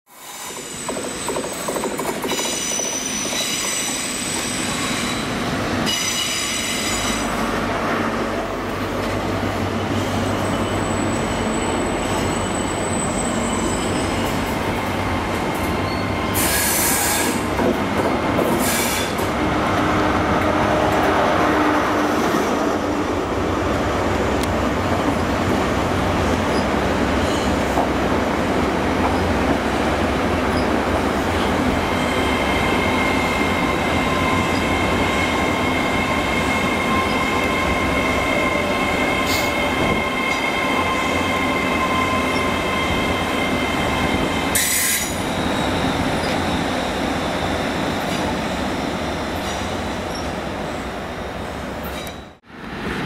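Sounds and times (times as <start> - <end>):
train wheel squeal: 0.1 - 7.4, 10.0 - 15.0, 15.7 - 19.3, 26.4 - 27.8, 30.5 - 30.8, 31.4 - 50.4
train wheels rumbling: 0.2 - 53.0.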